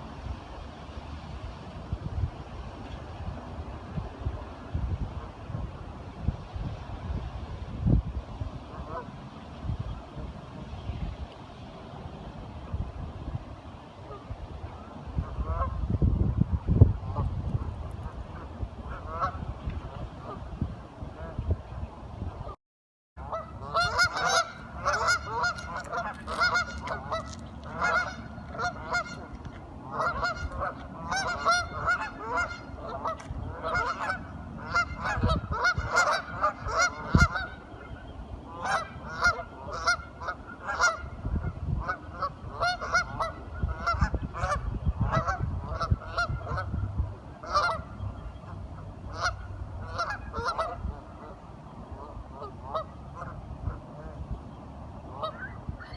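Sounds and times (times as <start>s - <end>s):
ducks calling: 23.2s - 41.1s, 41.8s - 46.8s, 47.4s - 54.1s.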